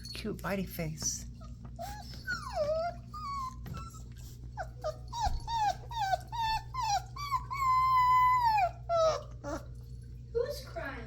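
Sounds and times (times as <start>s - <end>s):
puppy crying: 1.4s - 9.8s.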